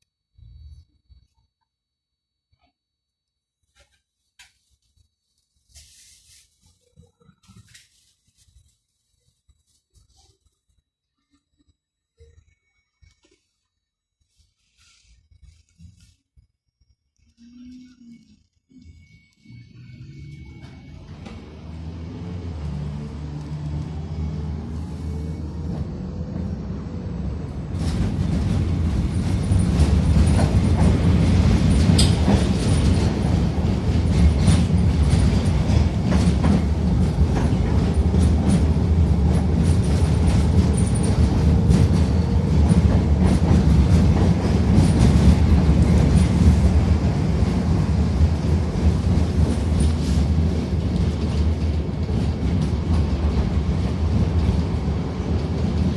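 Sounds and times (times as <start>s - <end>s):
tram rumble: 17.3s - 55.9s
tram motor whine: 18.7s - 55.9s
wheels clicking over rail joints: 27.7s - 46.8s.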